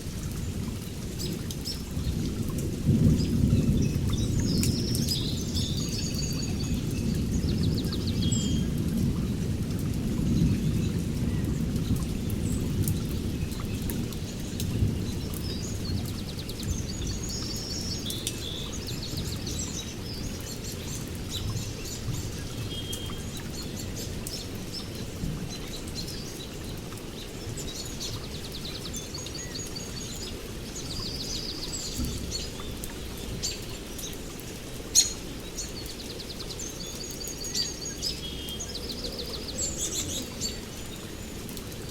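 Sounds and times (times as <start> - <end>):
low thunder rumble: 0.0 - 18.0
raindrops ticking nearby: 0.0 - 41.9
steady rain: 0.0 - 41.9
birds trilling and chirping: 10.2 - 41.9.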